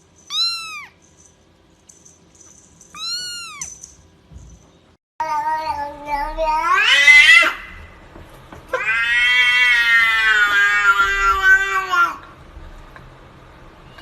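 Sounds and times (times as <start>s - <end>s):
cat meowing: 0.3s - 1.0s, 3.0s - 3.8s, 5.2s - 7.8s, 8.7s - 12.2s.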